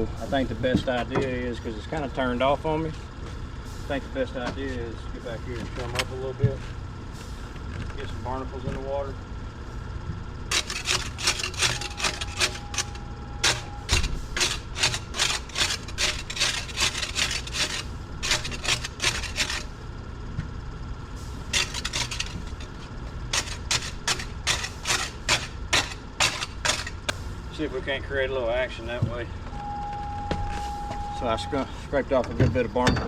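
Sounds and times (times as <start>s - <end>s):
rasping scraping of barnacles: 10.5s - 19.7s, 21.5s - 26.9s.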